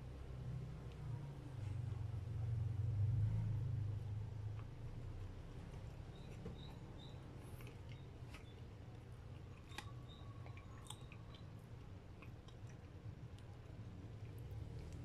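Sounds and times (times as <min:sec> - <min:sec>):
faint chewing: 0:04.2 - 0:15.0.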